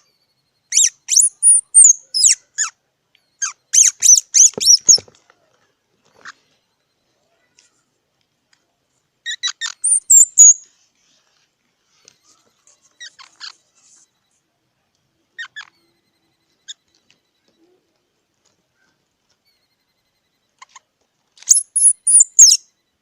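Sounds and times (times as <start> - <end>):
squirrel chirping and squeaking: 0.7 - 2.8, 3.4 - 5.1, 9.2 - 10.6, 12.2 - 14.1, 15.4 - 17.0, 20.6 - 22.7.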